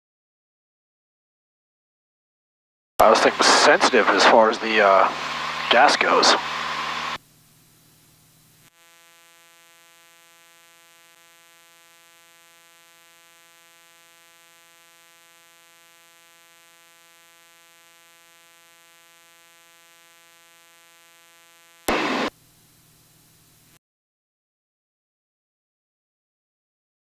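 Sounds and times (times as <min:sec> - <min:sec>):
steady electrical hum: 0:03.0 - 0:23.8.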